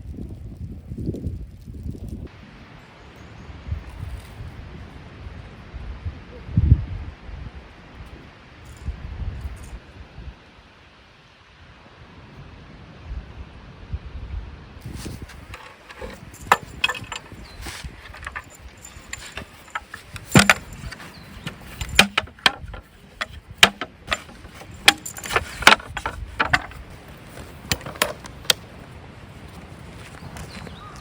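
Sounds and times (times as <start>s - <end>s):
camp gear knocking and clinking: 14.8s - 28.8s.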